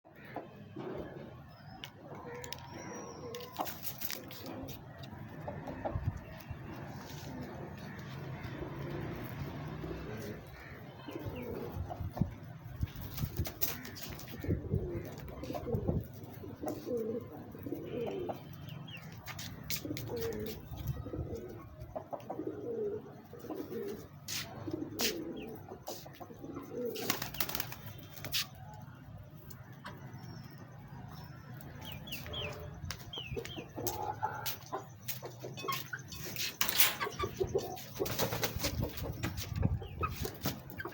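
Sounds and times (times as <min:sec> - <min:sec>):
birds cooing: 0:00.1 - 0:40.9.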